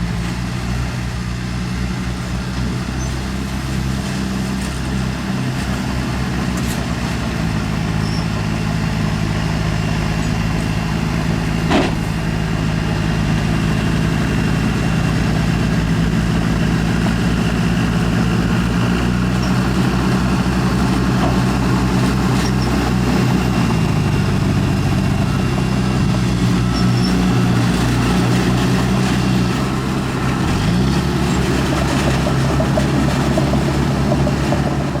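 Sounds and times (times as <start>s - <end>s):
diesel machinery engine running: 0.0s - 35.0s
sharp knock: 11.7s - 12.1s.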